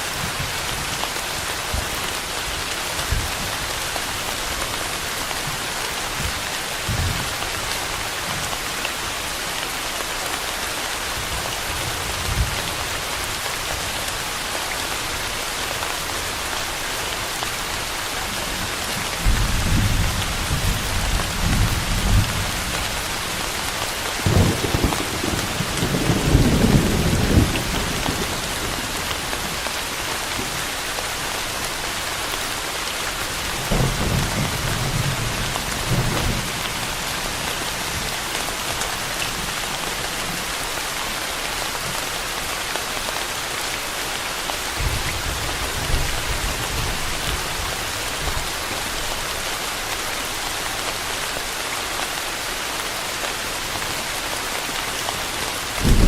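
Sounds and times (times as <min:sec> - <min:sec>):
steady rain falling: 0:00.0 - 0:56.0
thunder rumbling: 0:55.8 - 0:56.0.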